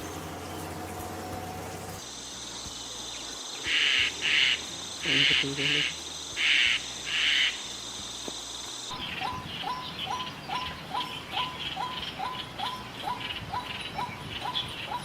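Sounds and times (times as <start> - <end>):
bird chirping: 8.9 - 15.0.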